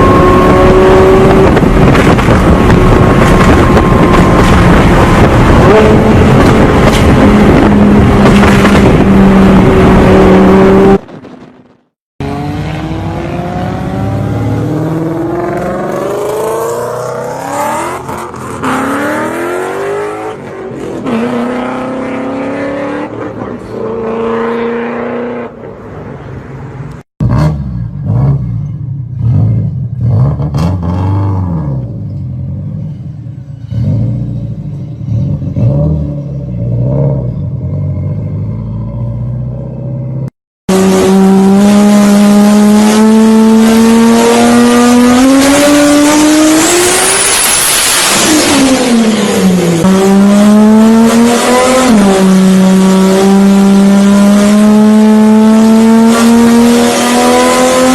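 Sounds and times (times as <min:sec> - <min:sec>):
car engine revving at high rpm: 0:00.0 - 0:20.4, 0:40.6 - 0:57.9
car accelerating through gears: 0:40.7 - 0:57.9.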